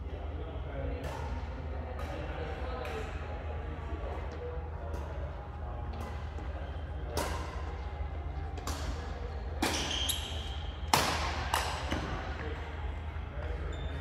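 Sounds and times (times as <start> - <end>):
rackets hitting shuttlecock: 4.2 - 7.8, 8.5 - 12.5.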